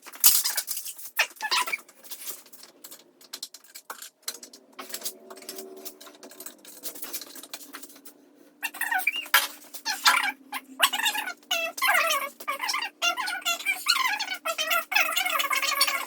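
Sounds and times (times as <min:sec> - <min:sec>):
bike parts clicking and knocking: 0:00.0 - 0:08.2.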